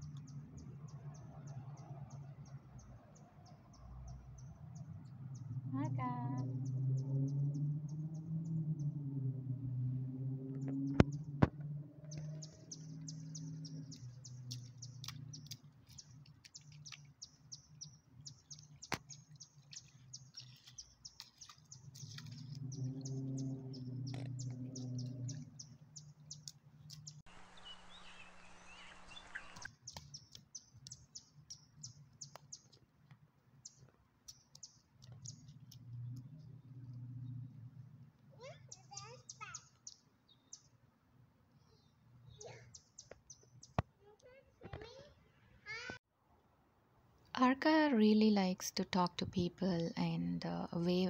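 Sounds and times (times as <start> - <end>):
small birds chirping: 0.0 - 8.3, 12.0 - 32.9, 33.6 - 37.7, 38.3 - 40.8, 41.5 - 46.0
low hum: 4.2 - 15.3, 21.8 - 26.6.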